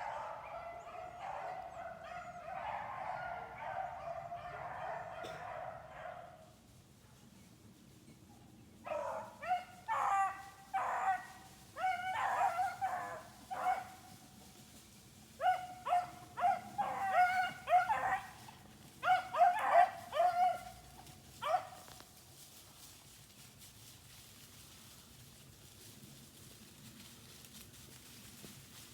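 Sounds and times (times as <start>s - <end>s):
hounds baying and yelping: 0.0s - 6.4s, 8.8s - 14.3s, 15.3s - 22.0s.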